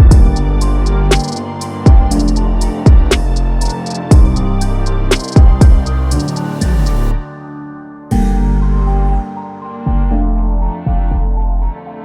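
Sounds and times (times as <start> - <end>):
ambient synthesizer chords: 0.0 - 12.0
deep bass note: 8.1 - 11.8.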